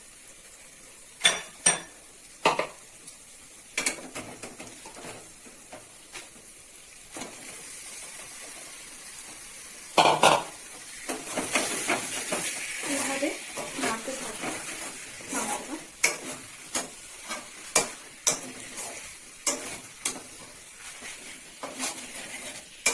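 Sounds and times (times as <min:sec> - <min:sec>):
chicken sizzling: 0:00.0 - 0:22.9
metal spatula scraping a pan: 0:07.1 - 0:22.9.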